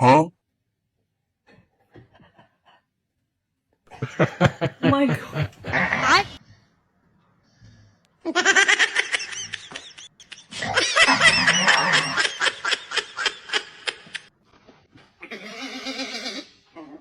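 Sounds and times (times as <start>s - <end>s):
person laughing hard: 3.9s - 6.4s, 8.5s - 14.3s.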